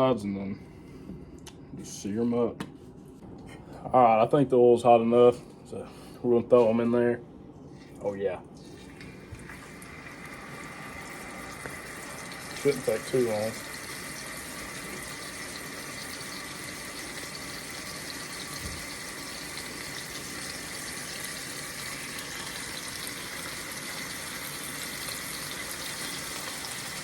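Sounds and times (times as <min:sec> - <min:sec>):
meat sizzling in a frying pan: 0:09.6 - 0:27.0.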